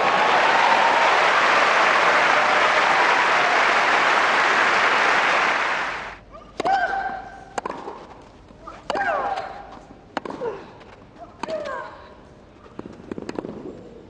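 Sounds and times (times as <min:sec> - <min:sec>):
crowd applause: 0:00.0 - 0:06.2.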